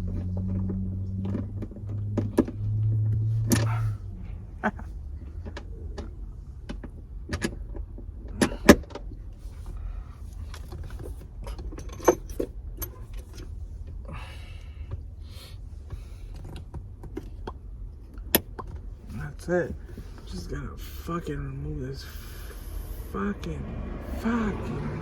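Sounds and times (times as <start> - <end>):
clicks and knocks of car interior parts: 0.0 - 14.0, 14.6 - 20.5
seatbelt buckle clicking: 1.2 - 3.8.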